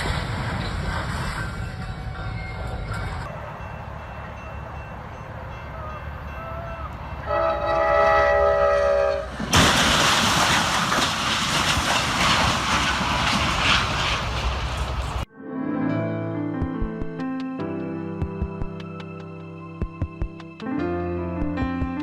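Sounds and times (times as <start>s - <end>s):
multi-tone horn blaring: 7.2s - 9.3s.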